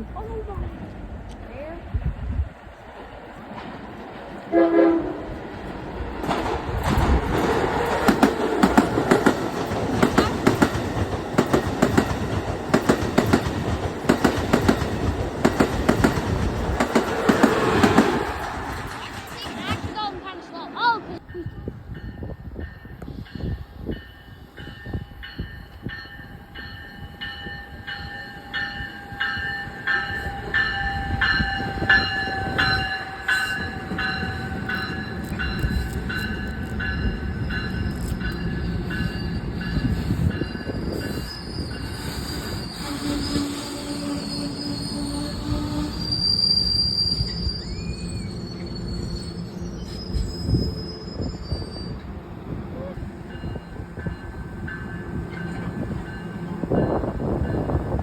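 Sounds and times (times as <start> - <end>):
train rumble: 0.0 - 58.0
train wheels clattering over rails: 5.5 - 20.2
high-pitched wheel squeals: 40.8 - 52.1.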